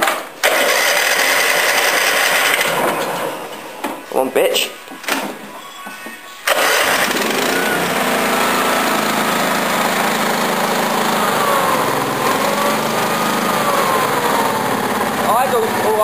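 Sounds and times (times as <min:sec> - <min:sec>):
mower engine starting and running: 0:00.4 - 0:03.1, 0:06.5 - 0:16.0.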